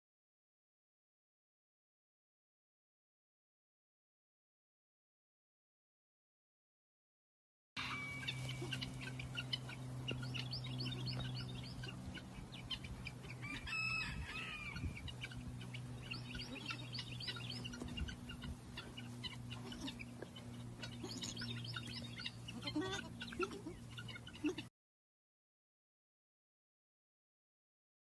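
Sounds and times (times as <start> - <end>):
chicks peeping: 7.8 - 24.7
drawn-out chick call: 7.8 - 24.7
steady low hum: 7.8 - 24.7.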